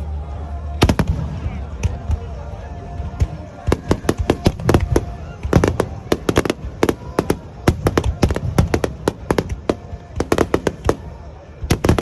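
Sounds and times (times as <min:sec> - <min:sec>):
fireworks banging: 0:00.8 - 0:12.0.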